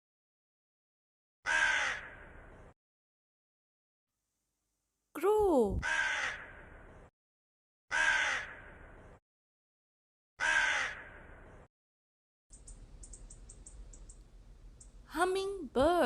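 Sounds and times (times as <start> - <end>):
crow cawing: 1.4 - 2.4, 5.8 - 6.8, 7.9 - 8.9, 10.4 - 11.3.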